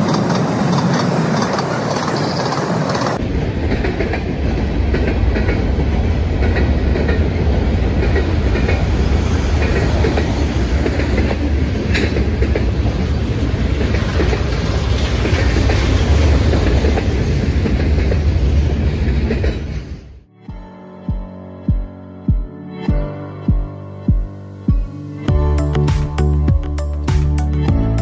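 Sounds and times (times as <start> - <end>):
wheels clickety-clack over rail joints: 0.0 - 20.0
steel wheels rumbling on rail: 0.0 - 20.2.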